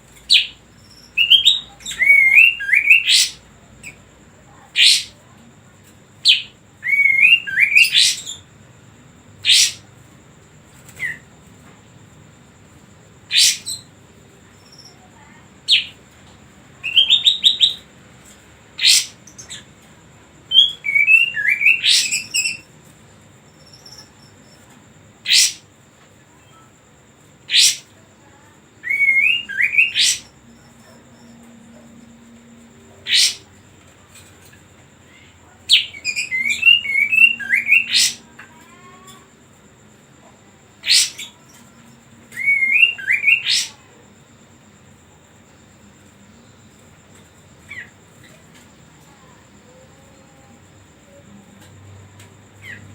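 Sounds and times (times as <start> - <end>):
faint steady high tone: 0.0 - 8.5, 26.0 - 52.9
songbird calling and warbling: 0.2 - 5.3, 6.2 - 8.5, 9.4 - 9.9, 10.9 - 11.3, 13.2 - 13.9, 15.7 - 16.0, 16.8 - 17.8, 18.8 - 19.7, 20.5 - 22.8, 23.6 - 25.7, 27.5 - 39.3, 40.8 - 44.1, 47.6 - 50.5, 52.6 - 52.9.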